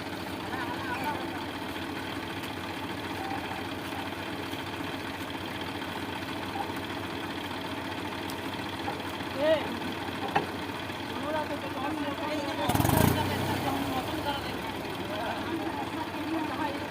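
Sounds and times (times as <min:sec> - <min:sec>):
tractor engine idling: 0:00.0 - 0:16.9.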